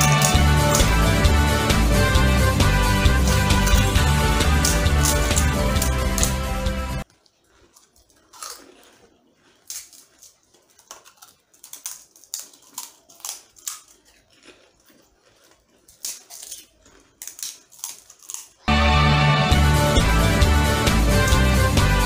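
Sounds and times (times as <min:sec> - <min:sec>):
crisp shells cracking and crunching: 0:00.0 - 0:01.0, 0:03.2 - 0:18.7.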